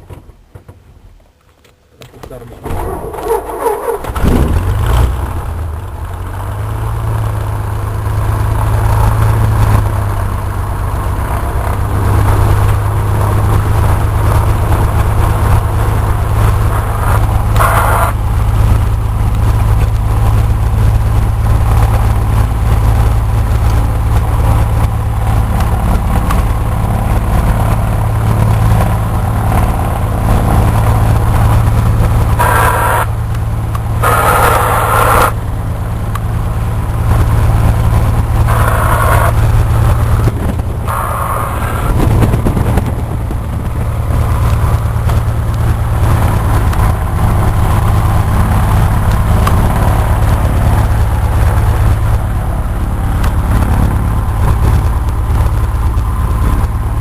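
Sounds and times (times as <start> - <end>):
aircraft piston engine idling: 31.3 - 37.0, 38.2 - 44.9.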